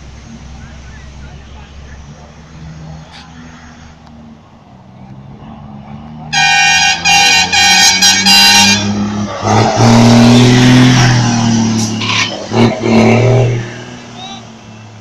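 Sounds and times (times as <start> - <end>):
truck engine running: 0.0 - 3.4
truck horn blasts: 6.3 - 11.0, 11.8 - 13.6.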